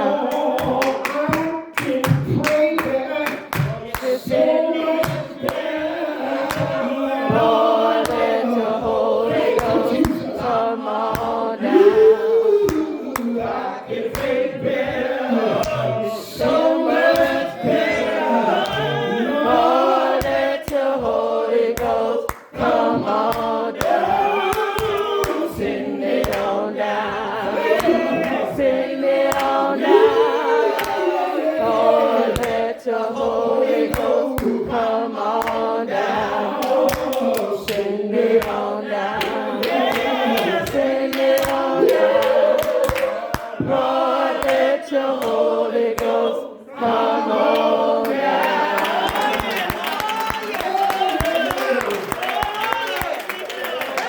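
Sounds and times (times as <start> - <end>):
choir singing gospel song: 0.0 - 54.0
hand claps: 0.3 - 11.5, 12.6 - 18.0, 19.9 - 26.6, 27.6 - 29.8, 30.7 - 31.1, 32.2 - 32.8, 33.8 - 46.2, 47.5 - 54.0.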